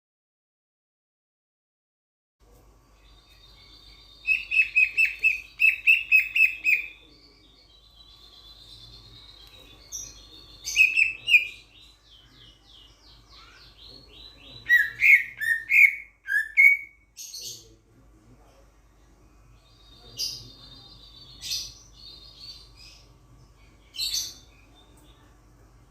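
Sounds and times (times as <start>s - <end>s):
starling calling: 3.6s - 7.0s, 9.4s - 11.8s, 13.3s - 17.6s.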